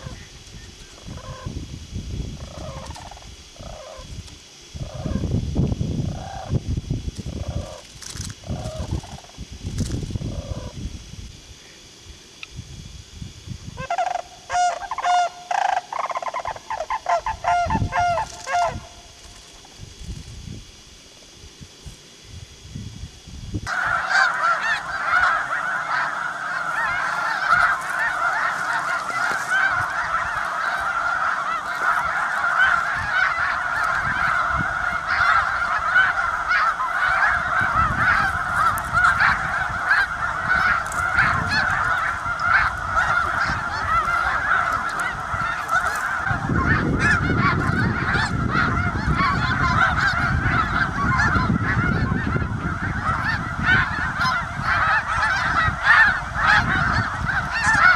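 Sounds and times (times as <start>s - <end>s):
geese honking: 1.0s - 1.5s, 2.4s - 4.0s, 13.8s - 19.0s, 23.7s - 57.9s.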